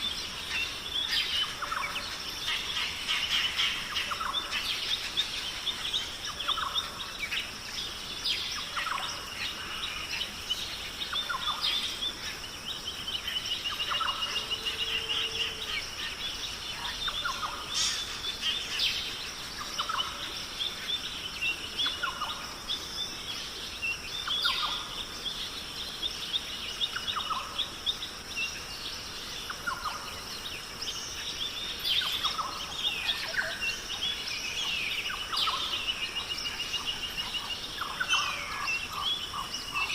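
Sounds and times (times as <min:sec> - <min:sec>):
bird chirps and trills: 0:00.0 - 0:39.9
steady high hiss: 0:00.0 - 0:39.9
lower bird call: 0:13.9 - 0:19.0.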